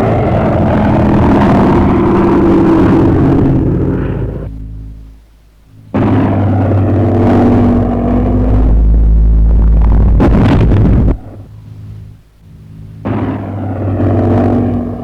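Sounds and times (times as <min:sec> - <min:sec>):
aircraft engine rumble: 0:00.0 - 0:15.0.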